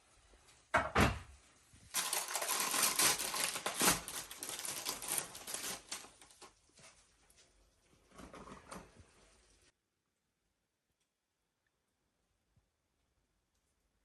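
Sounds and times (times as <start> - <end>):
objects clattering and crackling: 1.9 - 6.6.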